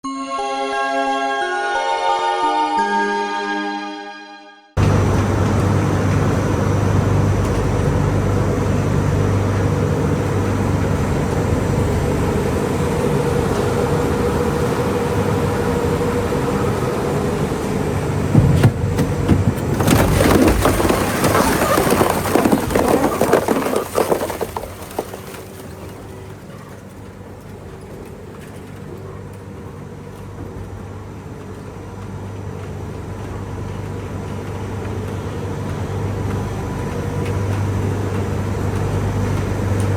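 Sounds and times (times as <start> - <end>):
recycling machinery humming: 4.8 - 39.9
loud rattling and crashing: 18.1 - 26.4.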